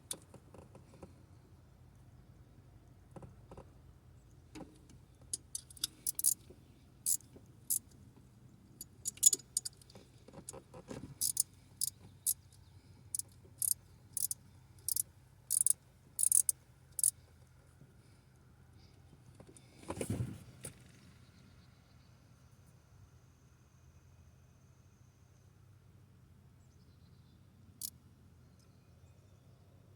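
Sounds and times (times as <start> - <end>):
hand ratchet clicking: 5.4 - 6.4, 7.1 - 7.8, 9.0 - 10.6, 11.2 - 11.9, 13.1 - 17.1.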